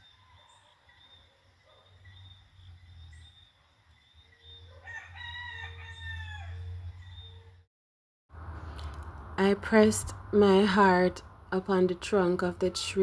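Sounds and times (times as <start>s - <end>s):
rooster crowing: 4.7s - 7.3s.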